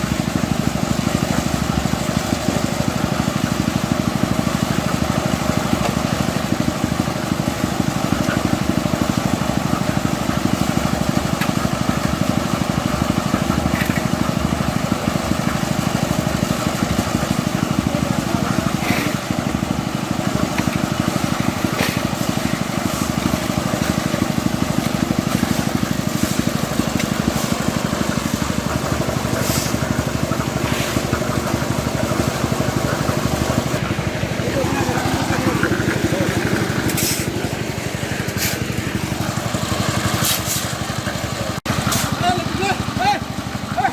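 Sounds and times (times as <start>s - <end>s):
construction machine engine running: 0.0s - 43.9s.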